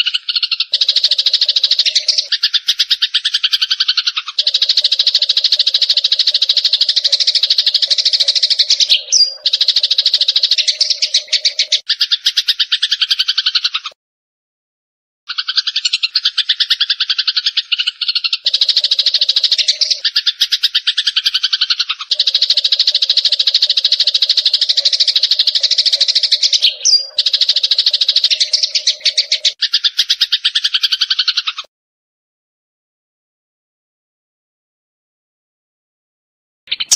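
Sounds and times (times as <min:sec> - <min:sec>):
gliding bird call: 0:00.0 - 0:14.0, 0:15.3 - 0:31.7
sparrows chirping: 0:00.0 - 0:14.0, 0:15.3 - 0:31.7, 0:36.7 - 0:36.9.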